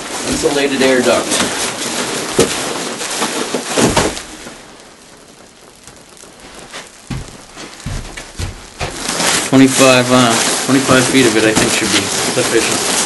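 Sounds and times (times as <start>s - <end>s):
plastic duct jacket crinkling: 0.0s - 13.0s
dull knocks: 6.7s - 9.4s.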